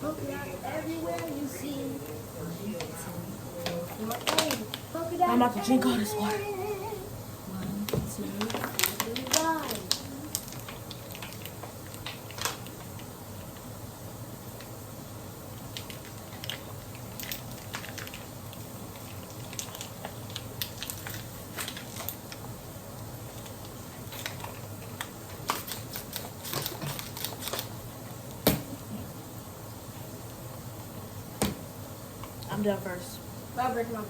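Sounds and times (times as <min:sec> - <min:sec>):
plastic bottles crinkling: 0:03.6 - 0:06.5, 0:08.2 - 0:12.9, 0:15.7 - 0:18.3, 0:18.9 - 0:22.4.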